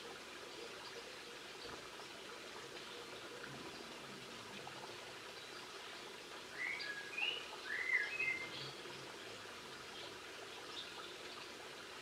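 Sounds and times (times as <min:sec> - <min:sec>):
songbird singing: 0:06.6 - 0:08.8.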